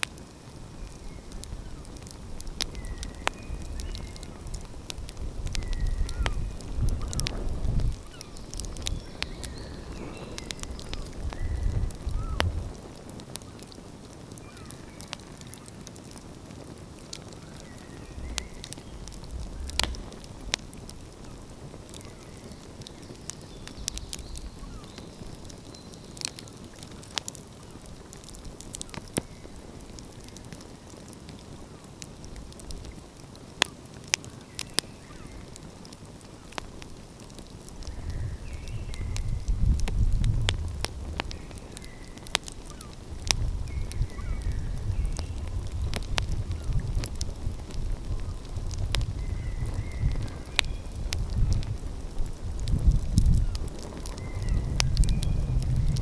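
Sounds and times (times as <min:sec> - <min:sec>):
wood fire crackling and popping: 0:00.0 - 0:56.0
low rumble: 0:17.8 - 0:21.6.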